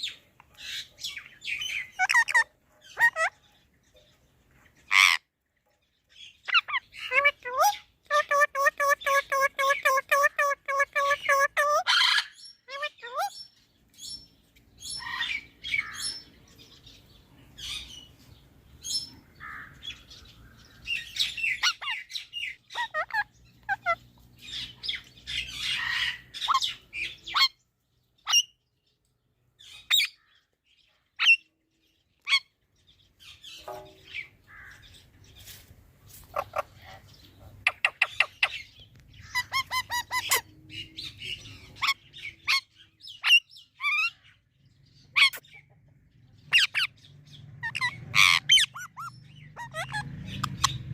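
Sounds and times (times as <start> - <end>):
parrot chirping and squawking: 0.7 - 3.4, 4.8 - 5.3, 6.4 - 14.2, 14.8 - 16.3, 18.8 - 27.6, 28.2 - 28.6, 29.6 - 30.3, 31.2 - 31.5, 32.2 - 32.6, 36.2 - 44.4, 45.1 - 45.6, 46.5 - 47.0, 47.6 - 50.9.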